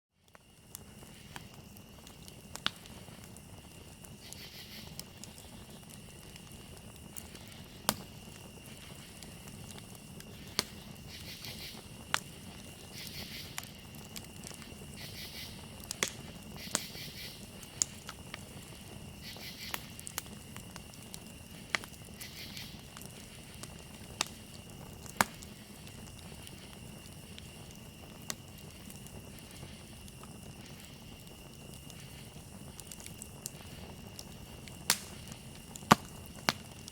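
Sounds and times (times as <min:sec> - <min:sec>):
campfire crackling and popping: 0:00.2 - 0:36.9
cricket trill: 0:00.2 - 0:36.9
insect chirping bursts: 0:00.4 - 0:36.9.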